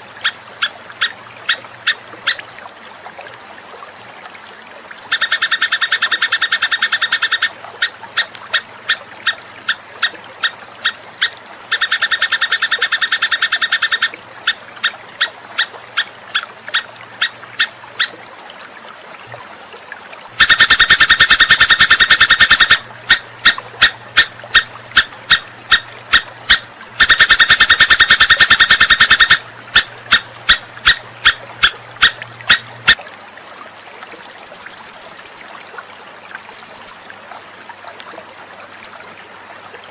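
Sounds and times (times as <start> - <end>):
high-pitched bird call: 20.4 - 23.6, 25.0 - 31.4, 34.1 - 35.4, 36.5 - 37.1, 38.7 - 39.2
bird buzzing trill: 36.5 - 37.1, 38.7 - 39.2.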